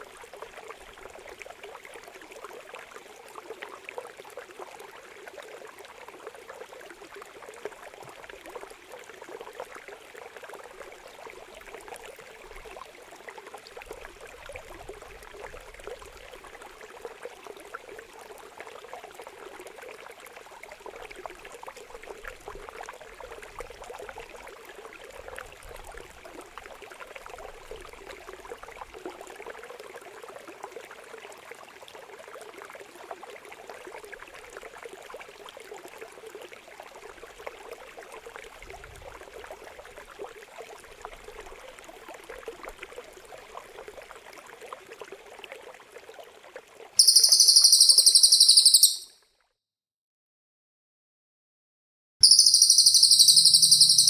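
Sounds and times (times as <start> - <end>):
water trickling and gurgling: 0.0 - 49.2, 52.2 - 54.0
shrill high-pitched bird call: 47.0 - 49.2, 52.2 - 54.0.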